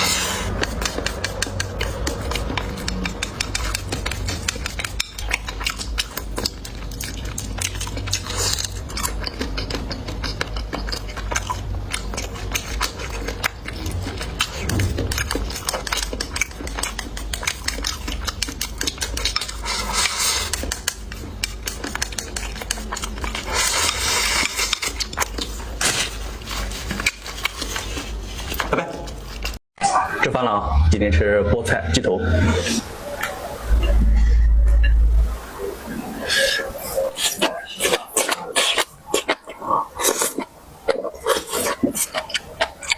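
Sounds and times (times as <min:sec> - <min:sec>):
close-miked chewing and biting: 0:00.0 - 0:29.6, 0:36.2 - 0:42.9.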